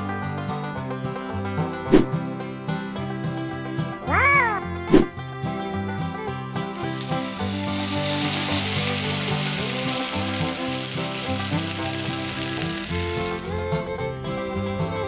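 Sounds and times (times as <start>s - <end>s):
background music: 0.0s - 15.0s
food sizzling in a hot pan: 6.8s - 13.9s.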